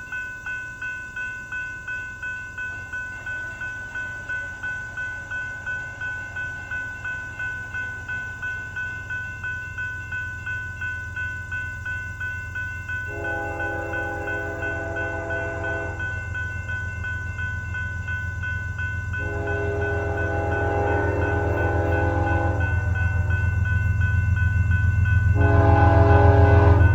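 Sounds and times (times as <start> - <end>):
railroad crossing bell ringing: 0.0 - 26.9
train engine rumble: 0.0 - 26.9
train air horn blasts: 13.1 - 16.1, 19.2 - 23.1, 25.4 - 26.9.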